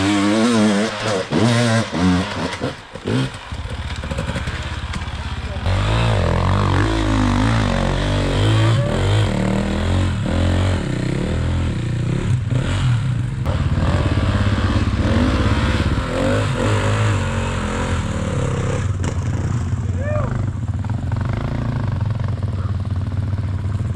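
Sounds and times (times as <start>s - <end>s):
dirt bike engine revving: 0.0s - 23.9s
clatter: 1.0s - 5.7s, 18.8s - 19.8s.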